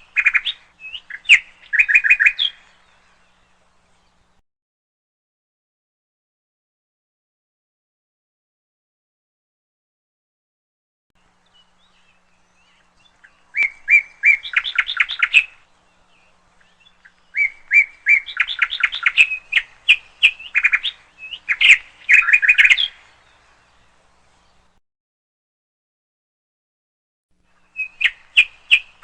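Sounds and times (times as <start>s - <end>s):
canary singing: 0.0s - 4.2s, 11.4s - 24.7s, 27.6s - 29.0s.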